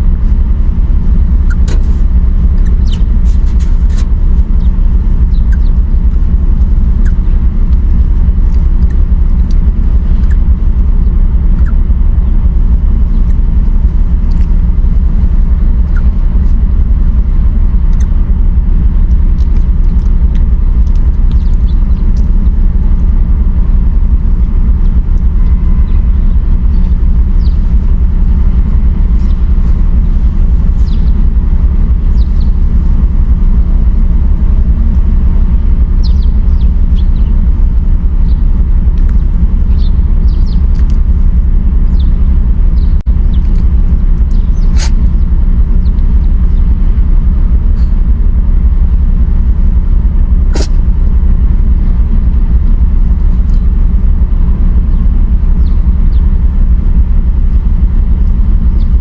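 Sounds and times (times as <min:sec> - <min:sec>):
low rumble: 0:00.0 - 0:59.0.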